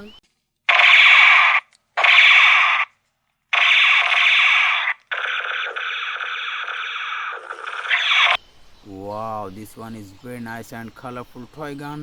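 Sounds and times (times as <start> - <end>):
toy gun buzzing tone: 0.7 - 2.8, 3.6 - 8.4
toy gun buzzy blast: 0.7 - 2.9, 3.6 - 8.4.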